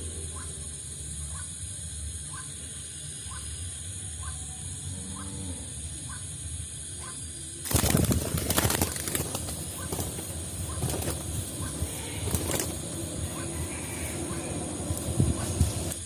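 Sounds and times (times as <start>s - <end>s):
dove flapping wings: 7.6s - 16.0s.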